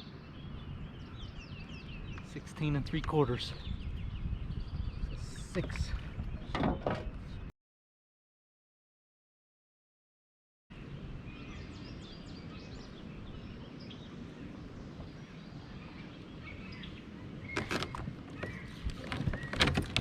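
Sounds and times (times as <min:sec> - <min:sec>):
small birds chirping: 0:00.0 - 0:07.5, 0:10.7 - 0:20.0
sharp clicks and knocks: 0:17.6 - 0:20.0.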